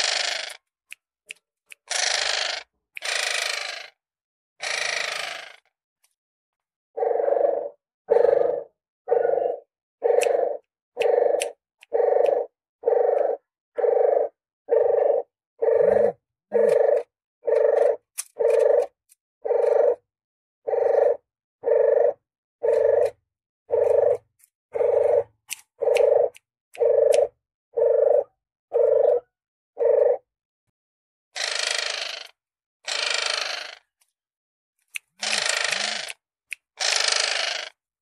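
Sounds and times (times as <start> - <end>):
dove cooing: 7.0 - 20.0, 20.7 - 30.3.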